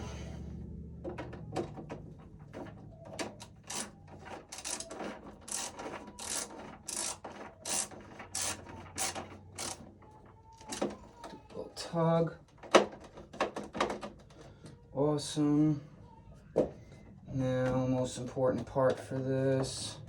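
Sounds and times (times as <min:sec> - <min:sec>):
screwdriver scraping on screw: 0:03.4 - 0:09.8.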